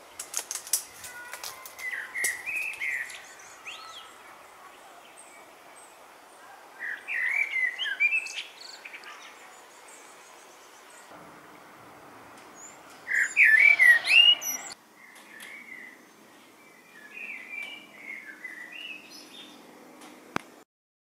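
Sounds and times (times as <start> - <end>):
faint bird chirps: 1.1 - 11.1, 12.6 - 19.5
songbird warbling: 12.6 - 16.0.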